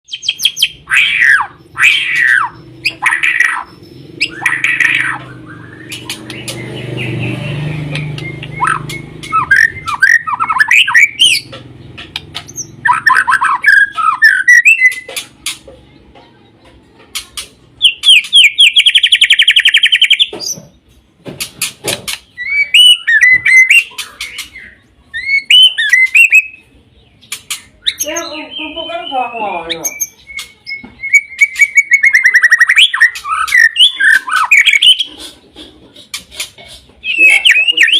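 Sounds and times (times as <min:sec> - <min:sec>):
bird singing whistles and chatters: 0:00.1 - 0:11.5, 0:12.4 - 0:15.6, 0:17.8 - 0:20.6, 0:22.1 - 0:35.4, 0:36.0 - 0:37.9.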